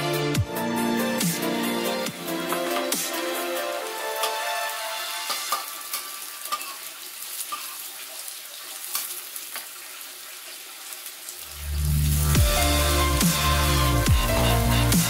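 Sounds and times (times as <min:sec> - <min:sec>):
mushrooms sizzling in a wok: 0:03.3 - 0:13.5
metal spatula scraping a pan: 0:05.2 - 0:07.9.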